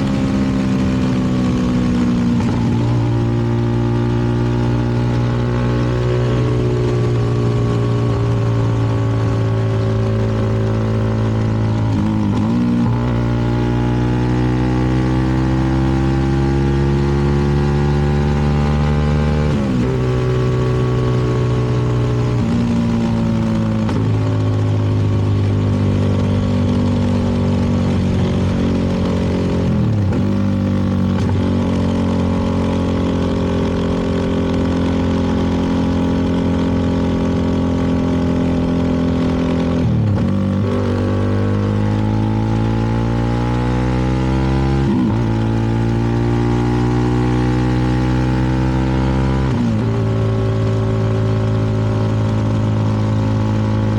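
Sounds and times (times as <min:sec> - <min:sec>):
motorcycle engine running: 0:00.0 - 0:53.9
road and wind noise: 0:00.0 - 0:53.9.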